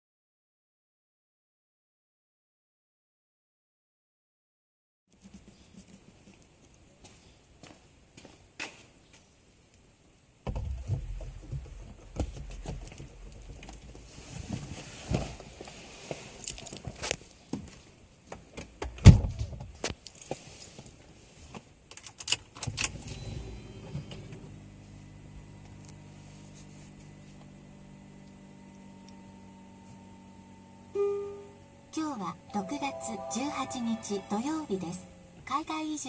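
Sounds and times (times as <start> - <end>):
steady low hum: 33.7 - 35.5.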